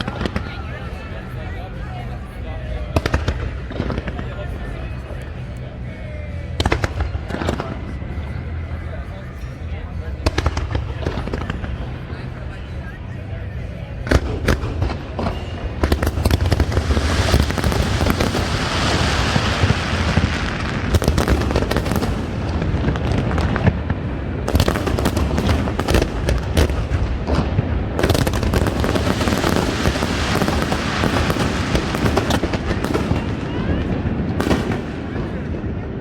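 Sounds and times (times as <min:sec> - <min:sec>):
firework cracks and booms: 0:14.1 - 0:36.0
fireworks crackling hiss: 0:15.8 - 0:23.6, 0:28.0 - 0:33.4.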